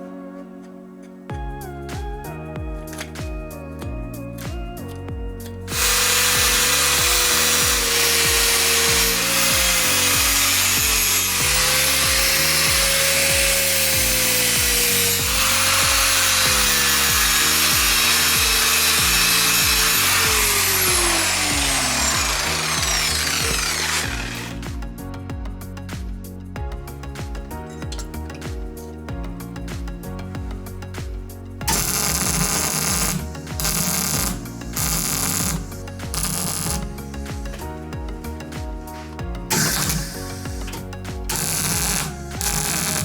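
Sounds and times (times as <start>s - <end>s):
background music with steady beat: 0.0s - 43.0s
power tool cutting iron: 5.5s - 24.6s, 31.6s - 43.0s.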